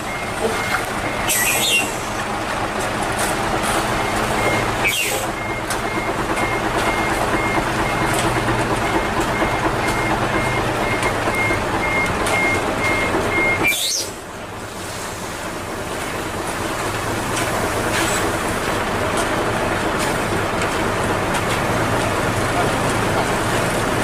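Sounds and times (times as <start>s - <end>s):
truck reversing alarm beeping: 0.0s - 14.3s
diesel engine running: 0.0s - 24.0s.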